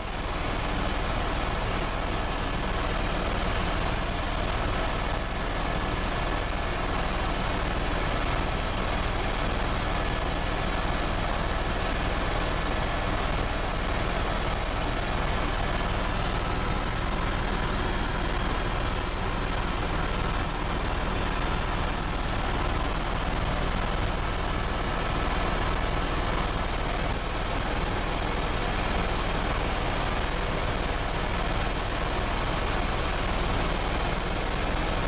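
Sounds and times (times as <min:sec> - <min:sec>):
faint steady whine: 0:00.0 - 0:35.0
helicopter running: 0:12.6 - 0:31.8.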